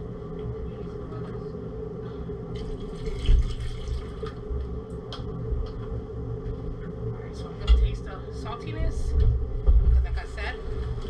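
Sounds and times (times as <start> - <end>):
steady low hum: 0.0 - 11.0
water pouring: 2.6 - 4.4.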